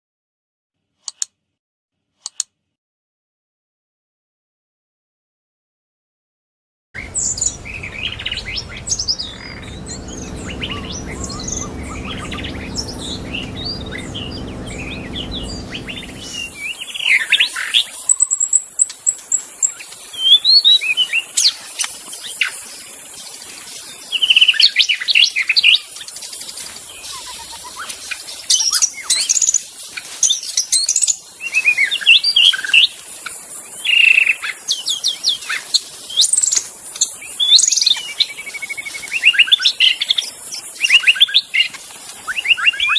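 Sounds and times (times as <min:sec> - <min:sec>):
low steady hum: 0:07.0 - 0:16.7.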